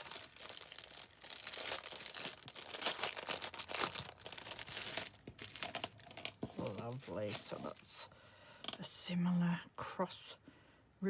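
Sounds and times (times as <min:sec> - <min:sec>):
plastic bag crinkling: 0:00.0 - 0:08.8.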